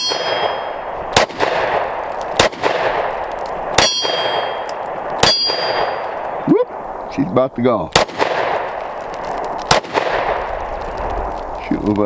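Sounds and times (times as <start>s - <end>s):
metallic ring of steel target: 0.0s - 0.8s, 3.8s - 4.6s, 5.2s - 6.0s
pistol shots: 0.0s - 6.2s, 7.9s - 8.8s, 9.7s - 10.5s.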